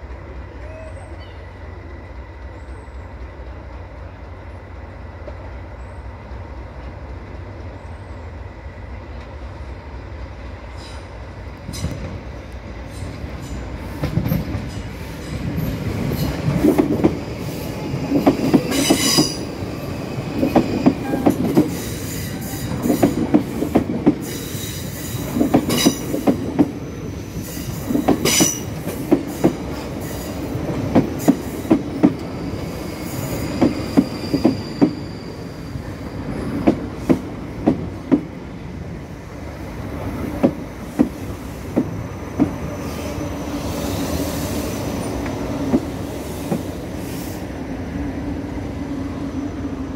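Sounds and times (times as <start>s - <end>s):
train rumble: 0.0s - 49.9s
train wheels clacking over joints: 20.3s - 26.8s, 27.4s - 35.2s
thin wheel squeal: 32.8s - 36.0s.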